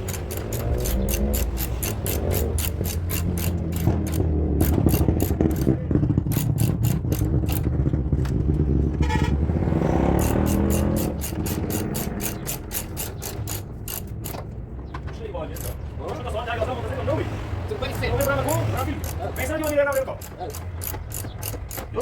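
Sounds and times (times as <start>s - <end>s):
machine clicking rapidly: 0.0s - 7.6s, 10.2s - 14.3s, 18.2s - 22.0s.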